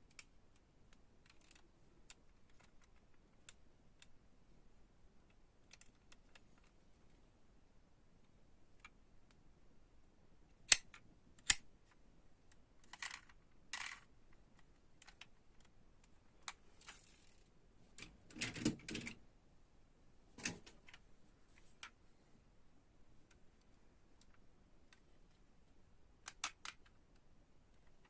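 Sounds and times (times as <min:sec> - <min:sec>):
toy cars clicking: 0:12.8 - 0:14.0, 0:16.5 - 0:17.5, 0:26.3 - 0:27.0.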